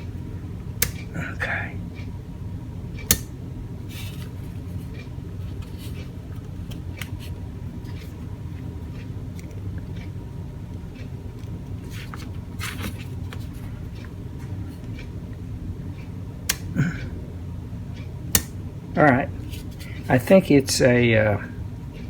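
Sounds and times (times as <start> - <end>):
steady low hum: 0.0 - 22.0
faint clicks and knocks: 3.0 - 17.1.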